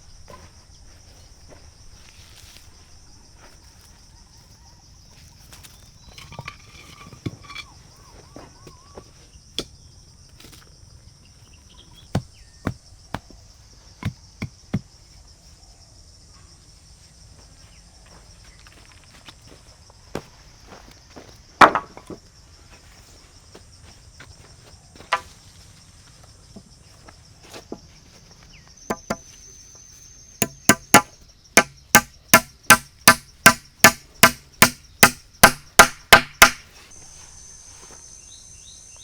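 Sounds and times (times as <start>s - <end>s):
insects chirring: 0.0s - 39.0s
sharp knocks: 28.9s - 29.2s, 30.4s - 36.7s.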